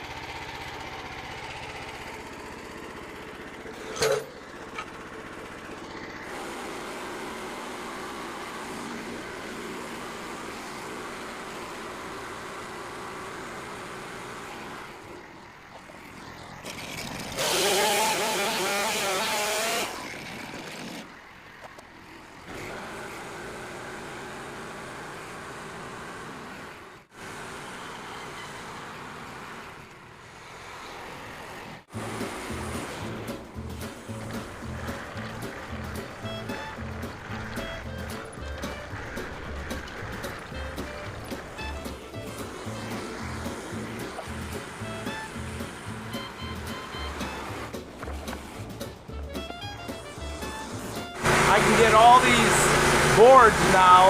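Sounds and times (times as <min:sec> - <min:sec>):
sawmill engine running: 0:00.0 - 0:54.0
band blade cutting wood: 0:16.6 - 0:21.1, 0:32.0 - 0:54.0
background music with a beat: 0:32.1 - 0:51.2.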